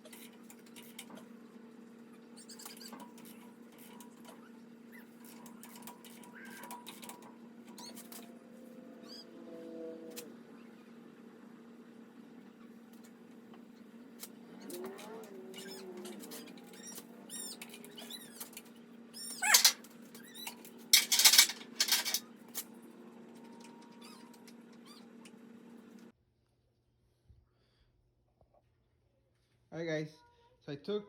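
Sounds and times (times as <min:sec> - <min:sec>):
metal tools clinking and scraping: 0:19.3 - 0:22.7.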